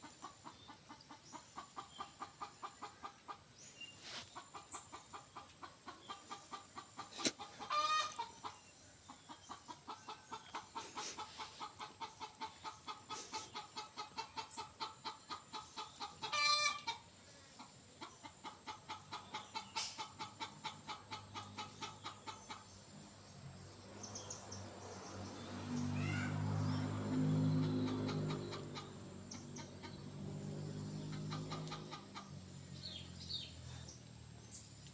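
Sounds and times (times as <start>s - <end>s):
bird calls in rapid pulses: 25.8s - 30.1s.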